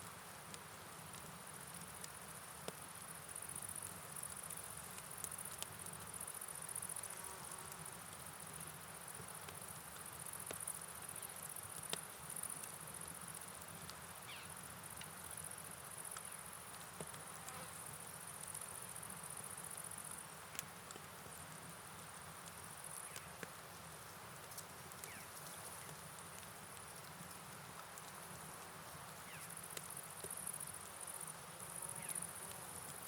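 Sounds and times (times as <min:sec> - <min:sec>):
rain and running water hiss: 0:00.0 - 0:33.0
sharp drip-like clicks: 0:00.5 - 0:07.0, 0:07.7 - 0:14.0, 0:14.9 - 0:17.2, 0:18.1 - 0:23.6, 0:24.4 - 0:28.7, 0:29.4 - 0:31.4
insects chirring: 0:14.2 - 0:20.4, 0:24.5 - 0:26.2, 0:28.1 - 0:33.0.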